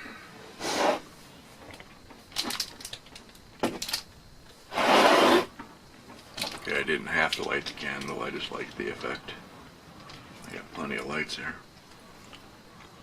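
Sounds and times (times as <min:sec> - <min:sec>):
loud rush of air: 0:00.0 - 0:01.2, 0:04.7 - 0:05.5
objects being handled clicking: 0:01.6 - 0:04.6, 0:06.1 - 0:06.7.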